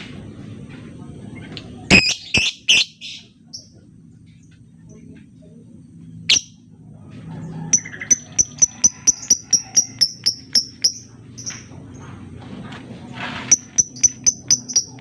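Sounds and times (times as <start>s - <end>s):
lovebird chirping: 6.3s - 6.6s, 7.8s - 11.7s, 13.5s - 15.0s.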